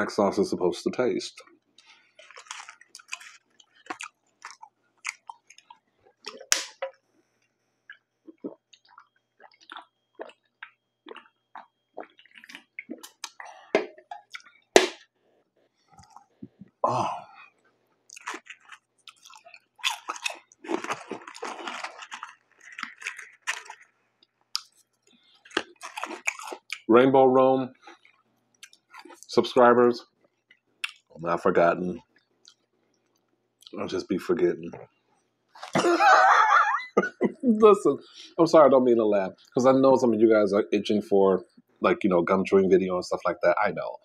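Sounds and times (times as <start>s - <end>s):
chewing french fries: 1.3s - 15.1s, 17.4s - 26.9s, 27.7s - 31.2s, 32.0s - 33.8s.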